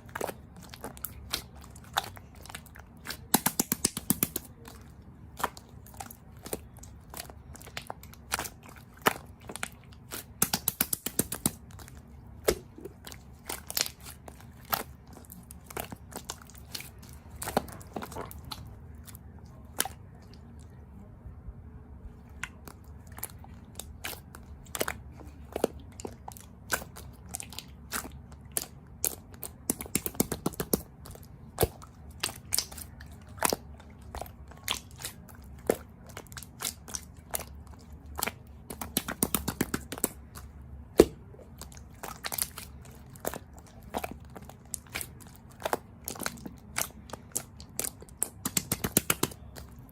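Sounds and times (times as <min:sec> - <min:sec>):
crisp crunching and clicking: 0:22.4 - 0:49.9.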